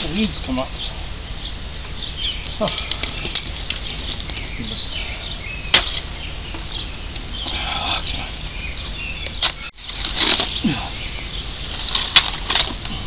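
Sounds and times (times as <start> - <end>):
shovel scraping: 5.7 - 6.1
shovel striking gravel: 5.7 - 6.1, 9.3 - 10.8, 11.7 - 12.9.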